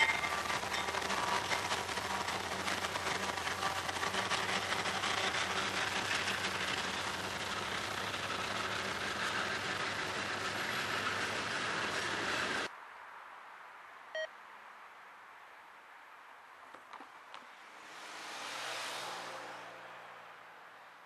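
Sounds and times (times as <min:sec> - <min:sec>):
freight train passing: 0:00.0 - 0:12.7
wheel-on-rail rush: 0:00.0 - 0:12.7.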